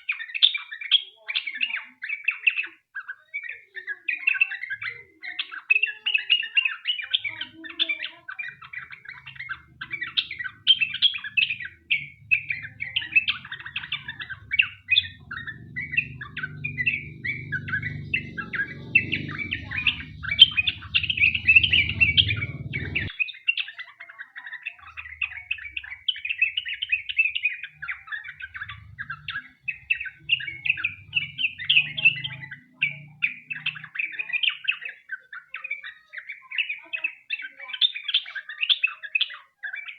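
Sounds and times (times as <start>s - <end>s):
bird singing fast chirps: 0.0s - 39.9s
faint low hum: 7.2s - 23.1s, 24.9s - 34.3s.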